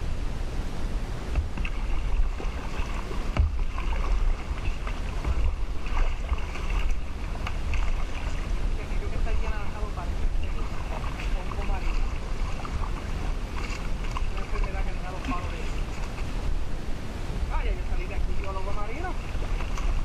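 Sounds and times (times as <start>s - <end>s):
wind rumble on microphone: 0.0s - 20.0s
paddles splashing in water: 1.2s - 20.0s
sharp knocks: 3.3s - 3.7s.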